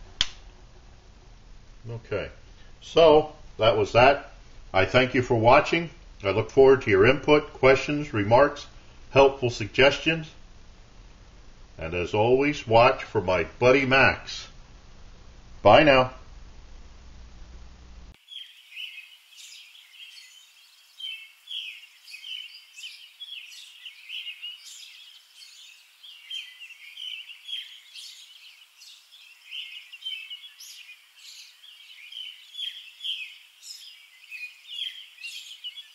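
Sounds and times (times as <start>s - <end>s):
birds chirping: 18.2s - 35.9s.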